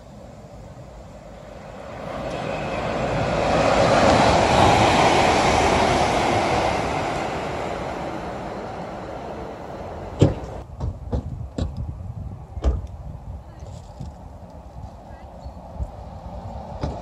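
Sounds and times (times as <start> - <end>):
electric train passing at speed: 0.0 - 10.7, 14.2 - 17.0.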